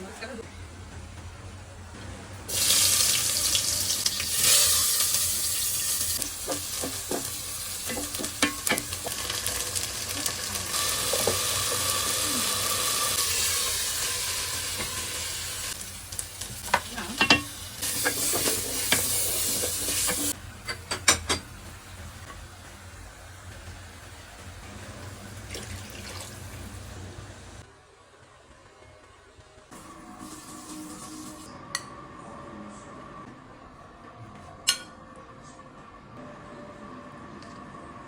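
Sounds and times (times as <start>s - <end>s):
food sizzling in a pan: 2.5s - 27.6s, 29.8s - 31.5s.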